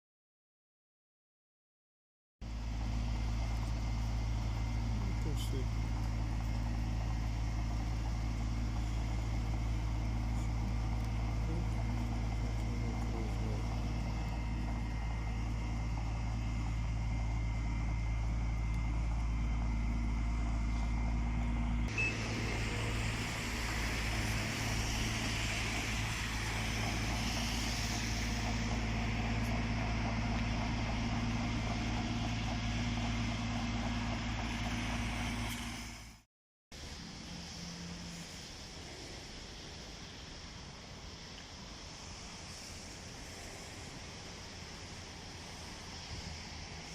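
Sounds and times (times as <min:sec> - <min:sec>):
car engine hum: 0:02.4 - 0:36.2
road noise: 0:02.4 - 0:46.9
rushing hiss: 0:02.7 - 0:18.5, 0:21.9 - 0:36.2, 0:36.8 - 0:46.9.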